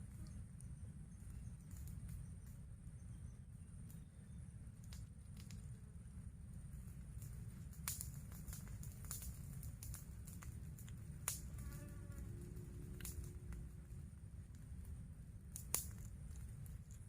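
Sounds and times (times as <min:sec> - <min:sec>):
steady low rumble: 0:00.0 - 0:17.0
flying insect buzzing: 0:11.3 - 0:13.8.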